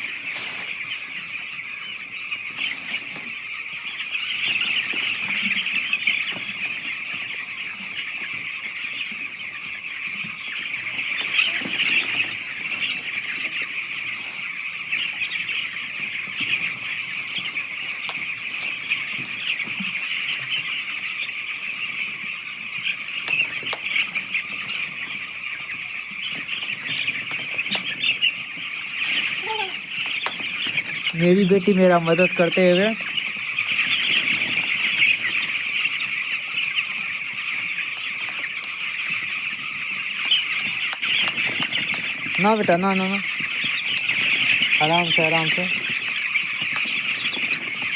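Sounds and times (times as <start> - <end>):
chicks cheeping: 0.0 - 47.9.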